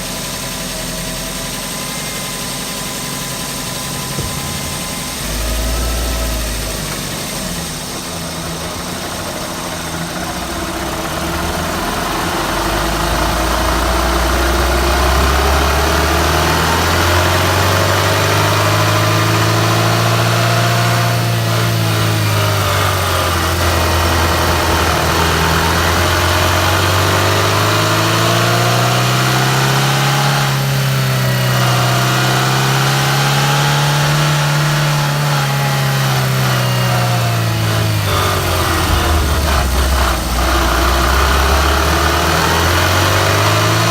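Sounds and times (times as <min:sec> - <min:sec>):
car engine revving: 0:02.4 - 0:43.9.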